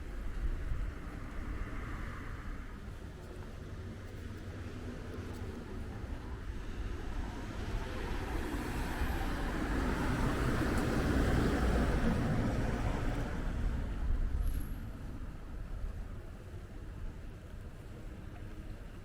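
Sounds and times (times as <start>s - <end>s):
road vehicle passing: 7.5s - 14.0s.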